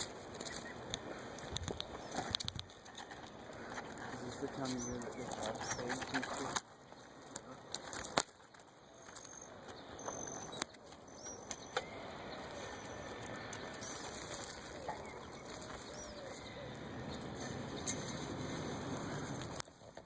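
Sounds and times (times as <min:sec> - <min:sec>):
fluttering rustle: 0:00.0 - 0:20.0
faint high bird chirps: 0:08.8 - 0:18.2.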